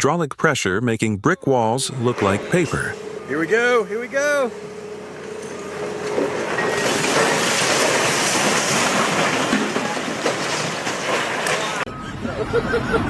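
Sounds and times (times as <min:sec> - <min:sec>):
rubble crashing and crumbling: 0:04.5 - 0:11.9.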